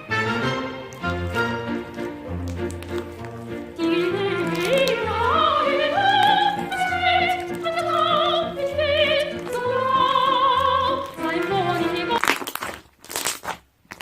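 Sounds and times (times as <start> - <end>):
orchestral accompaniment: 0.0 - 12.2
operatic soprano singing: 3.8 - 12.2.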